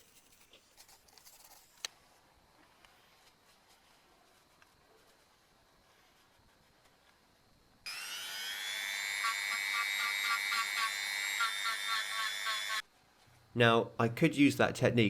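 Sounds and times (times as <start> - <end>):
electric rotary tool whining: 7.9 - 12.8.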